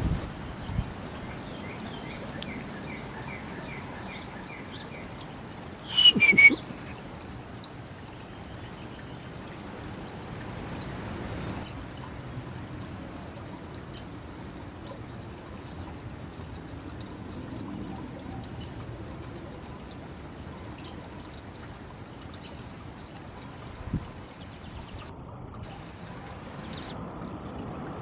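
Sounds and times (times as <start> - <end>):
outdoor background noise: 0.0 - 28.0
birds chirping: 0.7 - 9.6
two-note bird call: 5.8 - 6.8.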